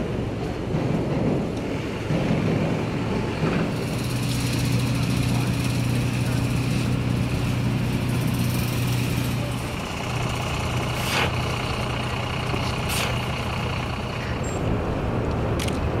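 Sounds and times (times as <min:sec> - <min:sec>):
large engine humming: 0:00.0 - 0:16.0
hiss: 0:10.3 - 0:13.6
sharp clicks: 0:15.3 - 0:15.9.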